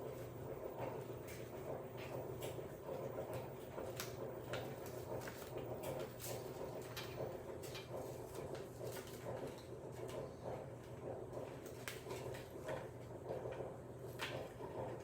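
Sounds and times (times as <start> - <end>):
paper rustling and clicks: 3.9 - 10.2, 11.6 - 12.9.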